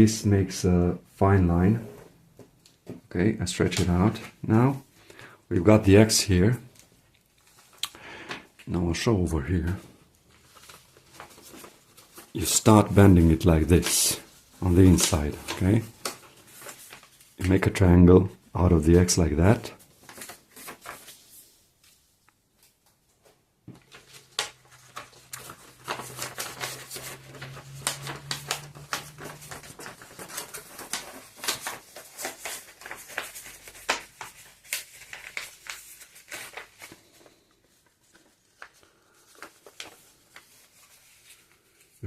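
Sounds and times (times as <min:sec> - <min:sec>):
paper crinkling: 0:06.7 - 0:07.9, 0:09.5 - 0:17.8, 0:19.4 - 0:42.0.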